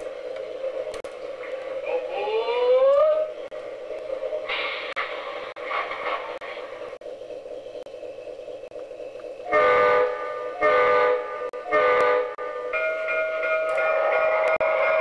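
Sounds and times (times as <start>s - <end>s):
train running noise: 0.0s - 15.0s
model train whistle blasts: 9.5s - 12.4s.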